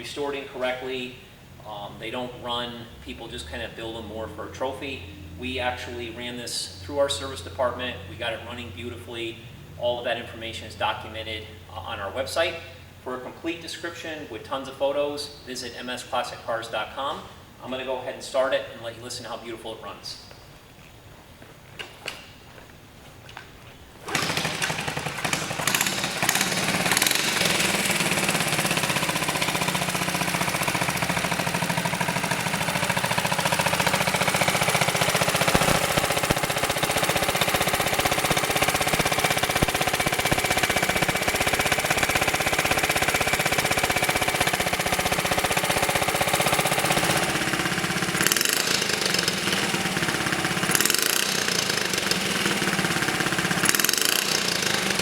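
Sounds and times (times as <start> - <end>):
minibike engine starting and running: 24.0 - 55.0.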